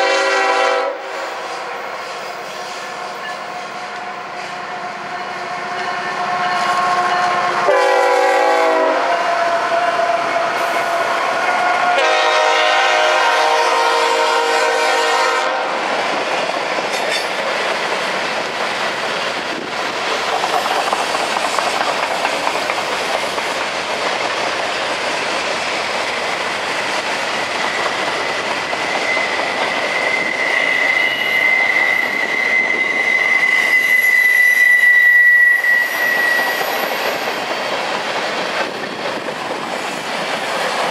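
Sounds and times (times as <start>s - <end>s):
locomotive horn blasts: 0.0s - 1.7s, 5.7s - 9.8s, 11.4s - 15.8s
train wheels on rails: 0.0s - 40.9s
high wheel squeal: 27.5s - 37.7s.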